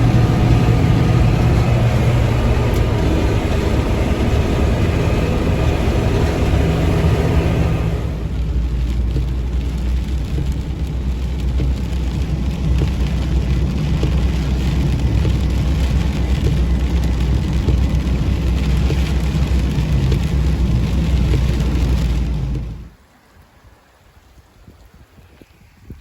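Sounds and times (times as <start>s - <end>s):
combine harvester engine drone: 0.0s - 11.1s.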